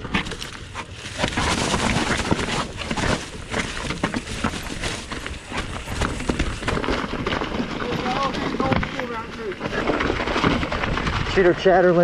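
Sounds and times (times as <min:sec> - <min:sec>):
bike clattering over rocks: 0:00.0 - 0:11.4.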